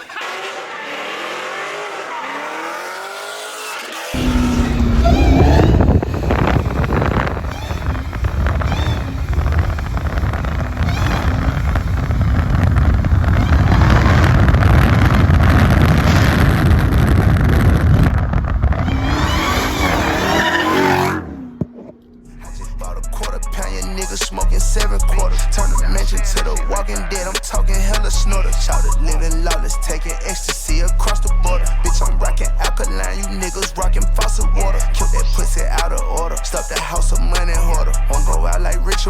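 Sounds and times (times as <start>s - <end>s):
car engine revving hard: 0.0s - 22.7s
tires squealing: 0.0s - 39.0s.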